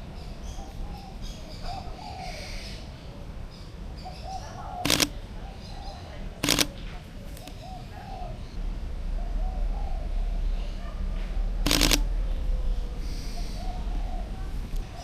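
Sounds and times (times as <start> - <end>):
doves cooing: 0.0 - 3.3, 4.0 - 8.6, 12.8 - 15.0
camera shutter burst: 4.9 - 5.2, 6.4 - 6.8, 11.7 - 12.1
low rumble: 8.5 - 15.0.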